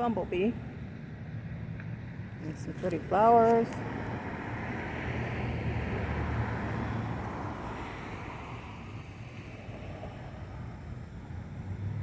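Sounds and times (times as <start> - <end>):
passing road traffic rumble: 0.0 - 12.0.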